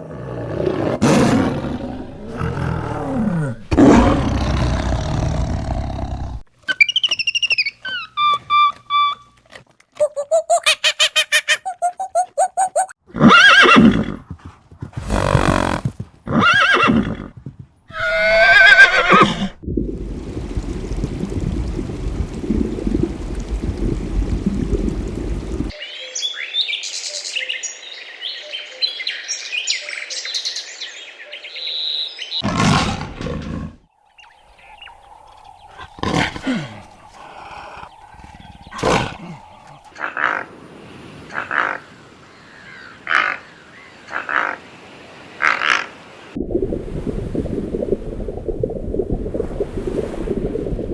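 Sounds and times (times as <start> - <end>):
high quick animal calls: 10.0 - 13.7
loud animal calls: 10.0 - 14.0, 17.9 - 19.6, 34.5 - 40.5
low rough animal call: 15.0 - 16.5, 34.5 - 39.9.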